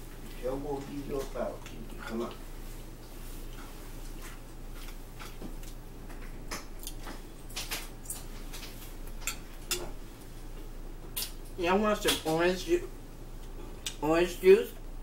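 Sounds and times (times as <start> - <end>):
low steady hum: 0.0 - 15.0
person chewing: 1.6 - 9.6.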